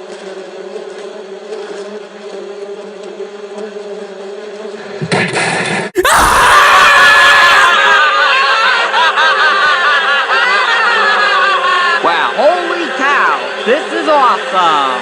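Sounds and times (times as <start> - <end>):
insect-like buzzing: 0.0 - 5.9
crowd screaming: 6.0 - 15.0.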